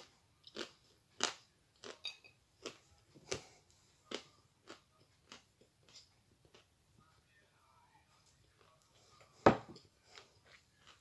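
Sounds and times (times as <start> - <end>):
crunchy chewing: 0.0 - 2.0, 2.6 - 6.7, 10.0 - 11.0.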